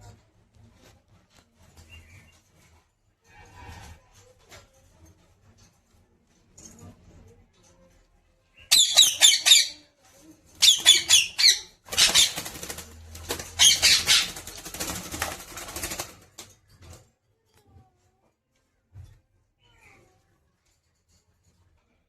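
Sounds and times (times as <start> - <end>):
parrot screeching: 8.7 - 9.8, 10.6 - 12.5, 13.6 - 14.4
wings flapping: 10.6 - 17.0.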